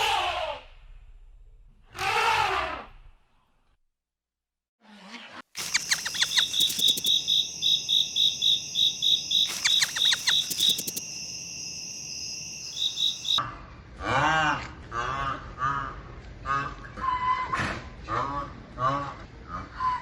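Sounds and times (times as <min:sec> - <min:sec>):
crickets chirping: 0:05.6 - 0:13.4.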